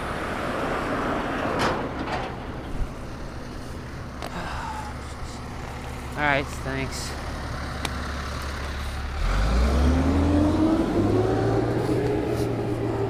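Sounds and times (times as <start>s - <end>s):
vehicle engine pulling away: 4.3s - 13.0s.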